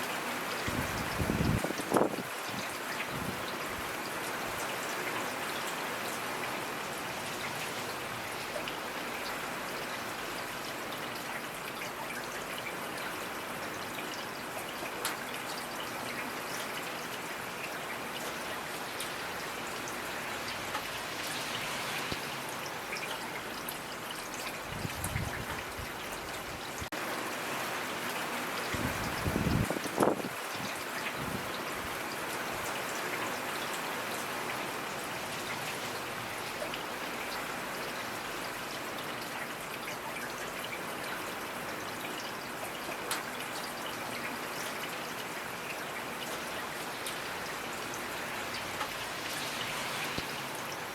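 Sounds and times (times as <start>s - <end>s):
raindrops ticking on surfaces: 0.0s - 50.9s
rain hissing: 47.1s - 50.9s.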